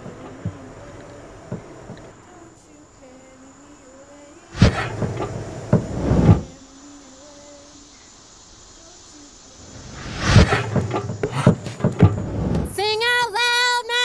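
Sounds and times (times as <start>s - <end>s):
rustling swishing bursts: 4.6s - 6.5s, 9.6s - 12.8s.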